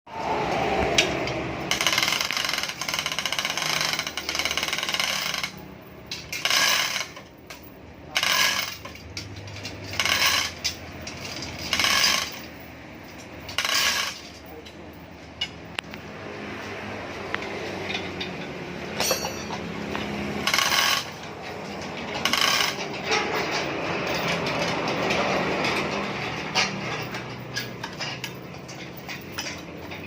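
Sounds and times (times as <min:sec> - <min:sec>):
metallic clinking: 0:01.6 - 0:15.8, 0:18.0 - 0:30.0.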